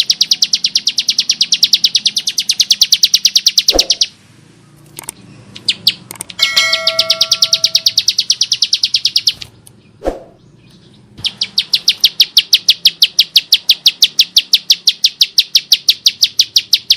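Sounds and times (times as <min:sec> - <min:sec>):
bird harsh ticking trill: 0:00.0 - 0:04.2, 0:05.4 - 0:09.4, 0:10.6 - 0:16.9.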